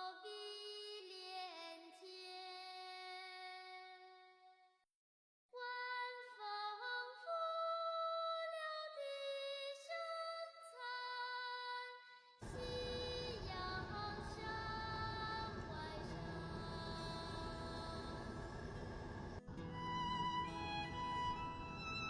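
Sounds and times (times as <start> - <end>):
slow melody sung in high voice: 5.6 - 22.0
steady noise: 12.4 - 22.0.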